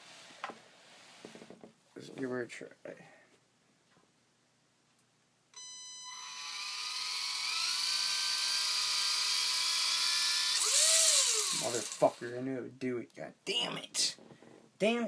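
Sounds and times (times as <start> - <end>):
electric motor whine: 6.1 - 12.2.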